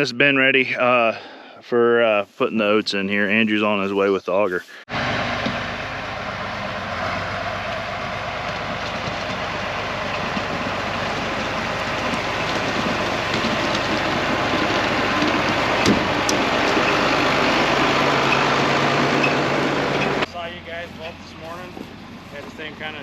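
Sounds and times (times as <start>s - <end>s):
farm machinery engine: 4.9s - 23.0s
rattling clatter: 7.1s - 20.3s.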